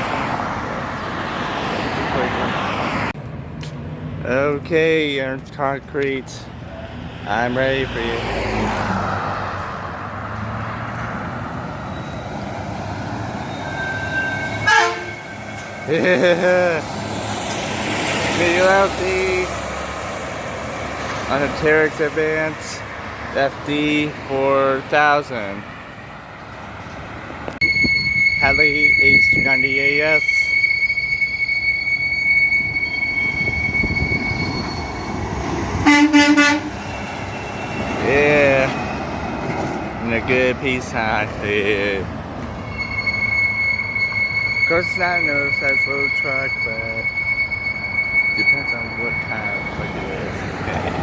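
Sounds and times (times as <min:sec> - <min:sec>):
heavy trucks passing: 0:00.0 - 0:51.0
truck air horn blast: 0:13.6 - 0:16.4, 0:35.8 - 0:37.9.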